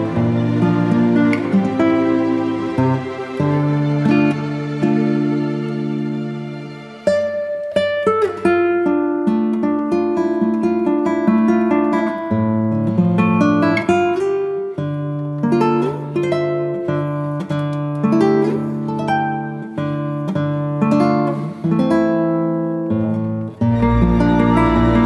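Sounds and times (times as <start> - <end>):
acoustic guitar melody: 0.0 - 25.0.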